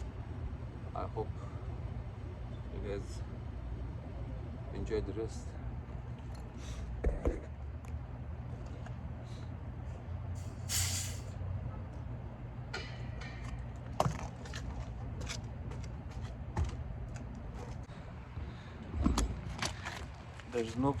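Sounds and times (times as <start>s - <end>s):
low machine hum: 0.0s - 21.0s
gas hissing: 10.4s - 11.3s.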